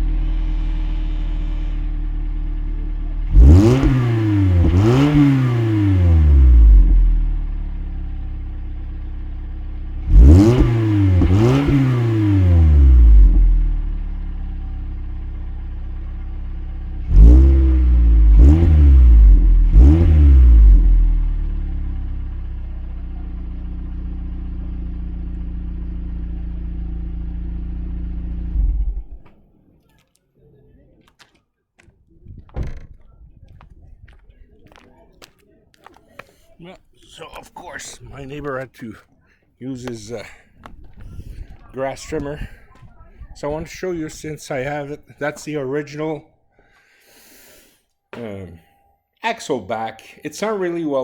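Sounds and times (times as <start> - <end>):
car engine idling and revving: 0.0 - 29.4.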